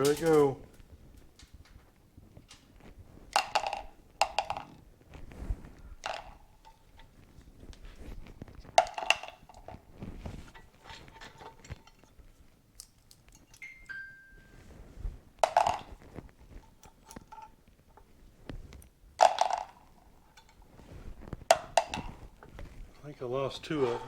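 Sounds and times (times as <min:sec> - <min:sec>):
steel balls clattering onto metal: 0:00.0 - 0:01.8, 0:03.4 - 0:04.8, 0:08.8 - 0:09.8, 0:15.4 - 0:16.0, 0:19.2 - 0:20.6, 0:23.0 - 0:24.0.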